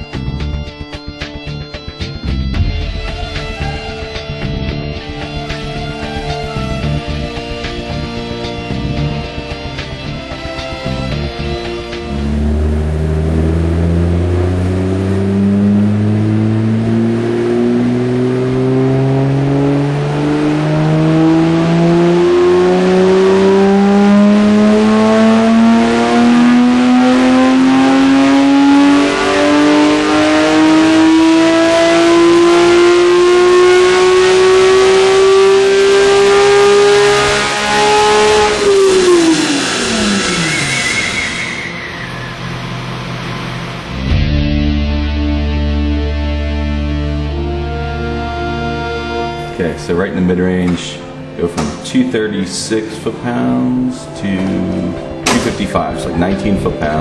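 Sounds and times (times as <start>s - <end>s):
car engine revving on dyno: 2.6s - 44.3s, 45.0s - 57.0s.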